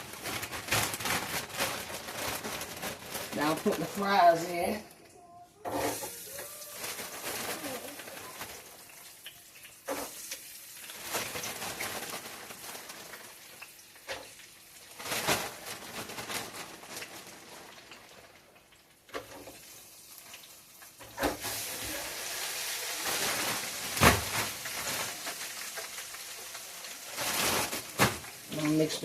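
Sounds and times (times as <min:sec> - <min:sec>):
fries sizzling in hot oil: 0:00.0 - 0:02.7, 0:05.6 - 0:29.0.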